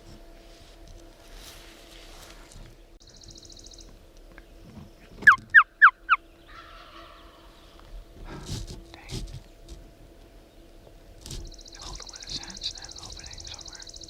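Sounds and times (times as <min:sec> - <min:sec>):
turkey yelps: 0:05.2 - 0:07.5.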